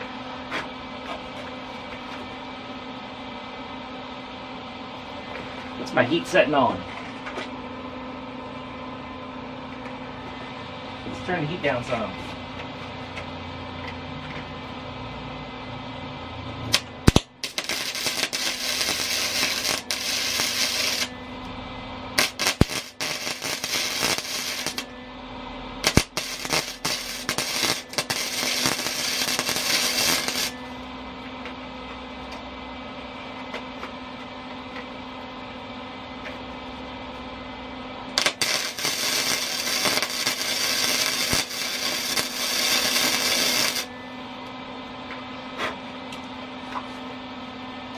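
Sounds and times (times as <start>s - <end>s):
steady hum: 0.0s - 47.9s
arc welder crackling: 15.9s - 32.4s, 37.8s - 45.0s.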